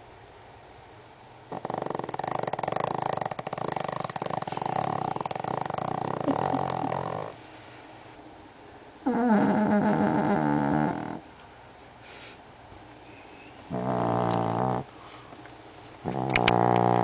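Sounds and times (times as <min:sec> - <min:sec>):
small dog snoring: 0:01.5 - 0:07.4, 0:09.0 - 0:11.2, 0:13.7 - 0:14.9, 0:16.0 - 0:17.0.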